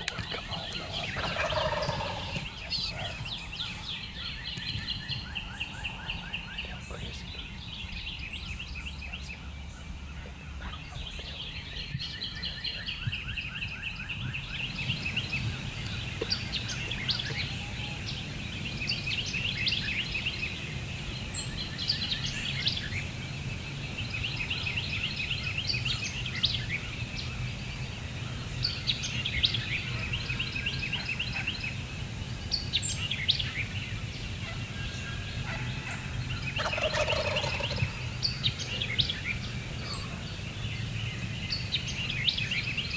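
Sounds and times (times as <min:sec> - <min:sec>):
songbird chirps: 0:00.0 - 0:42.9
wild turkeys gobbling: 0:00.1 - 0:04.3, 0:14.6 - 0:18.4, 0:34.0 - 0:40.3.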